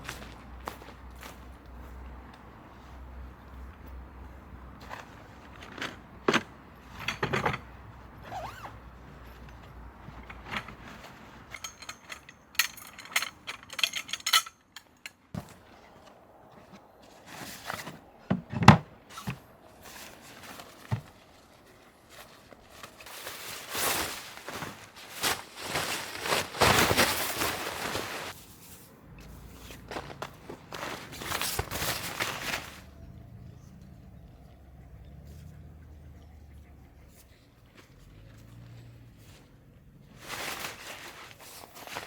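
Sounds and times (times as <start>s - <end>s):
camping gear knocking and rustling: 3.4s - 33.1s, 40.1s - 42.0s.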